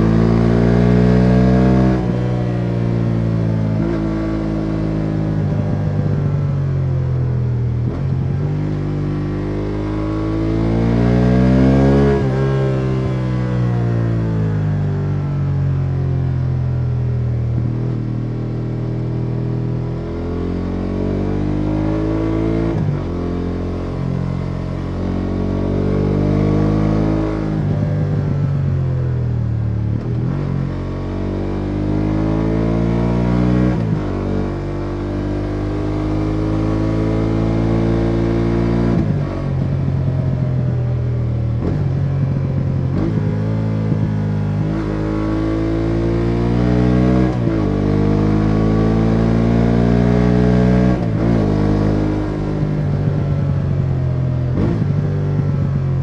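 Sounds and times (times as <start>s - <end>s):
road and wind noise: 0.0s - 56.0s
motorcycle engine under throttle: 17.4s - 56.0s.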